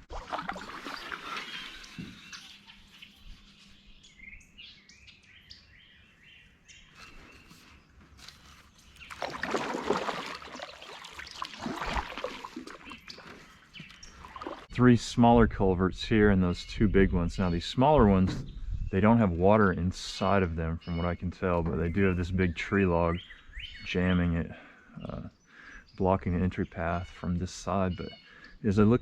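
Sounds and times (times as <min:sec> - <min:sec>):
rough scraping and splashing: 0:00.0 - 0:03.6, 0:07.0 - 0:14.7
birds chirping: 0:00.6 - 0:14.7, 0:16.2 - 0:29.0.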